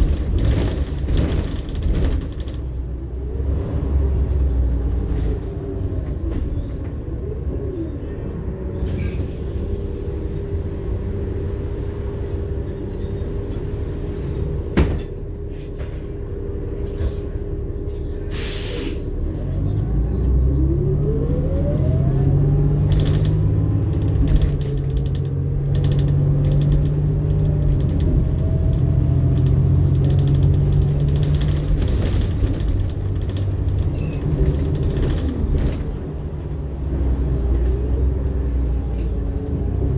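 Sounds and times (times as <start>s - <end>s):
bus engine rumbling: 0.0s - 39.9s
air hiss: 18.3s - 19.0s.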